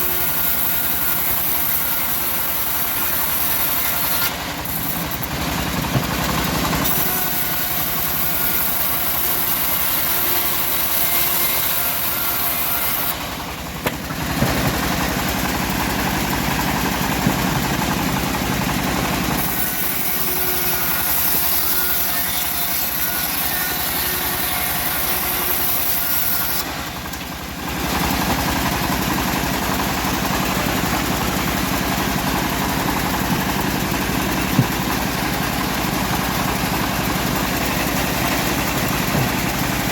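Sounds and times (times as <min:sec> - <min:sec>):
saw hissing through log: 0:00.0 - 0:05.8, 0:06.7 - 0:27.1
sawmill engine running: 0:00.0 - 0:39.9.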